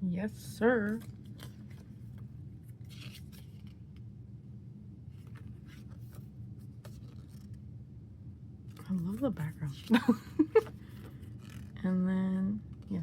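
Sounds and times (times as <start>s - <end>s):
steady low hum: 0.0s - 13.0s
paper rustling: 0.8s - 3.9s, 5.2s - 7.6s.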